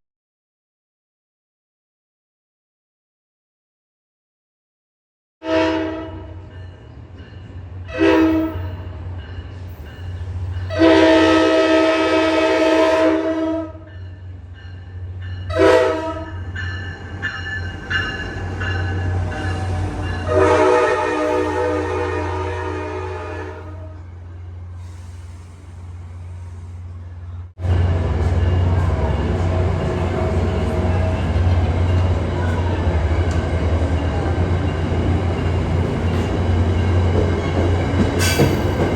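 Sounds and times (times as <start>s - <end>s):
train horn blasts: 5.4s - 6.6s, 7.9s - 8.9s, 10.6s - 14.0s, 15.5s - 16.4s, 19.0s - 24.1s.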